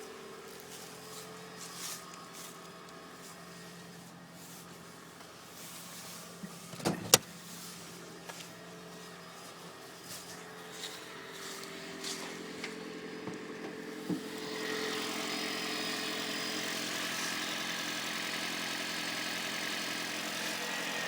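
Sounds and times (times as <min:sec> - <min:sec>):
car engine humming: 0:00.0 - 0:21.0
engine knocking: 0:13.2 - 0:21.0.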